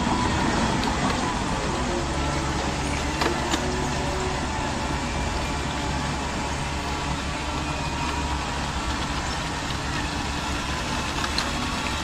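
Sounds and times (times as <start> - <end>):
model machines engine drone: 0.0 - 12.0.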